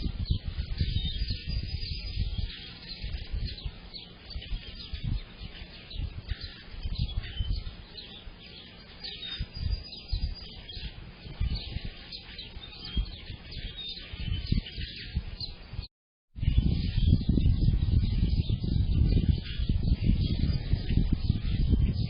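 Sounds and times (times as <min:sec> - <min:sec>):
songbirds chirping and singing: 0:00.0 - 0:22.0
wind buffeting microphone: 0:00.0 - 0:22.0.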